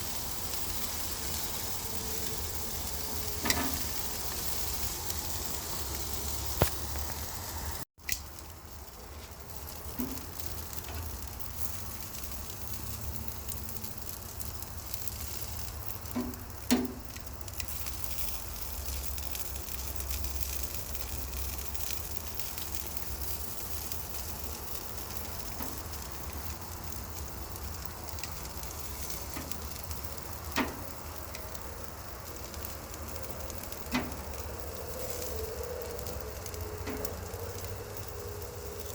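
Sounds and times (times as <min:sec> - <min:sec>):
meat sizzling on a grill: 0:00.0 - 0:38.9.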